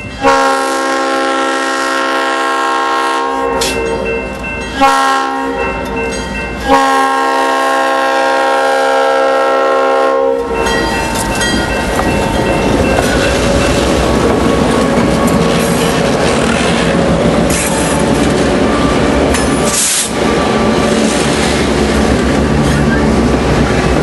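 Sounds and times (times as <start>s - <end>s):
train rumbling past: 0.0s - 24.0s
locomotive horn blasts: 0.1s - 4.0s, 4.8s - 5.8s, 6.6s - 10.6s
train wheels clattering on rails: 3.5s - 4.9s, 10.4s - 24.0s.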